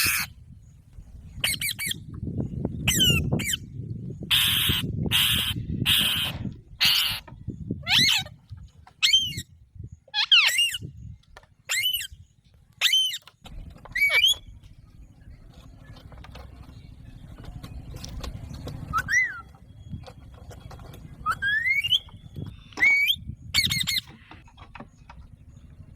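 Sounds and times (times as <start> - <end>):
parakeet calling: 0.0 - 0.3, 4.2 - 8.4, 9.0 - 11.0, 11.6 - 12.2, 13.9 - 14.6, 21.2 - 24.4.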